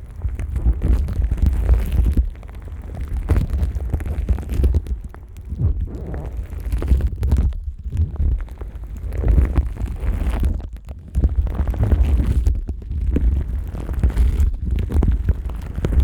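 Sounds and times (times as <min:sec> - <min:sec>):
low handling rumble: 0:04.8 - 0:07.4.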